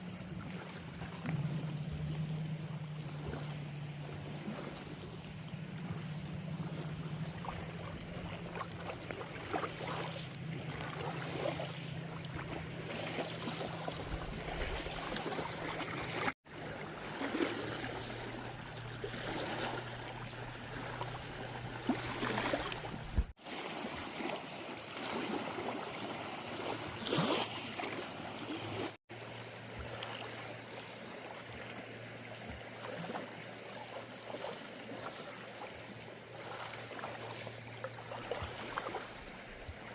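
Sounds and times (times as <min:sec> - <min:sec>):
steady low hum: 0:00.0 - 0:16.4, 0:17.7 - 0:23.3
kayak paddle splashing: 0:00.0 - 0:39.9
water lapping against hull: 0:00.0 - 0:39.9.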